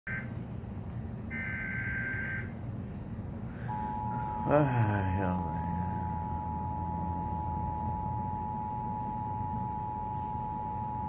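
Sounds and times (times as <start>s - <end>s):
two-tone alert signal: 3.7s - 4.6s.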